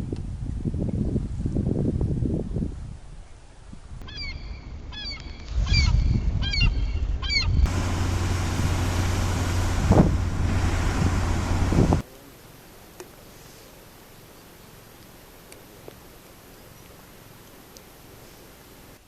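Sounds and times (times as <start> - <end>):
bird calling: 4.0 - 7.7
low hum with noisy rush: 4.5 - 12.0.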